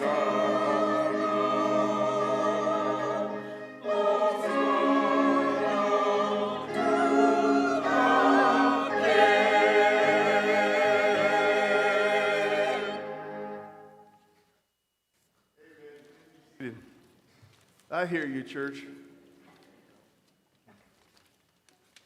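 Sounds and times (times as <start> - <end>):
choir and congregation singing a hymn: 0.0 - 14.0.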